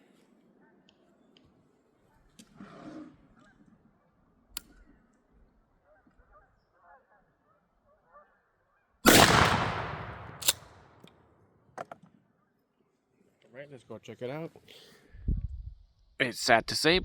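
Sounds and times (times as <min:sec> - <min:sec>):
shotgun blast: 0:09.1 - 0:10.9
sharp clicks: 0:09.1 - 0:11.1.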